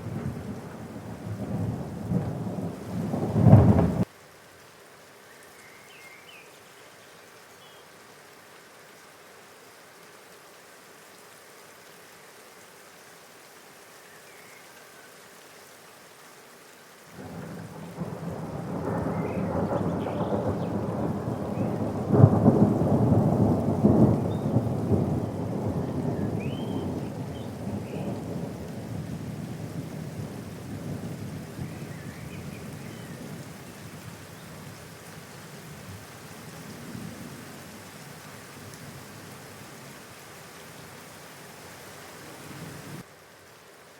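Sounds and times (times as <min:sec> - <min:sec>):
thunder rumbling and cracking: 0:00.0 - 0:04.1, 0:17.2 - 0:32.0
steady rain: 0:00.0 - 0:43.9.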